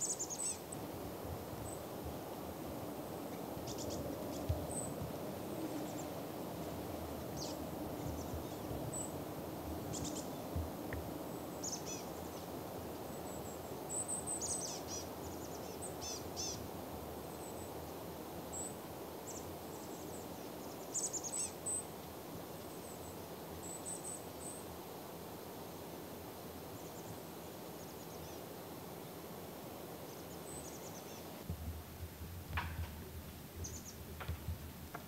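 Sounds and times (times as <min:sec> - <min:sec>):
small birds chirping: 0:00.0 - 0:02.2, 0:03.2 - 0:22.0, 0:30.0 - 0:31.4, 0:33.5 - 0:34.1
outdoor background hiss: 0:00.0 - 0:35.0.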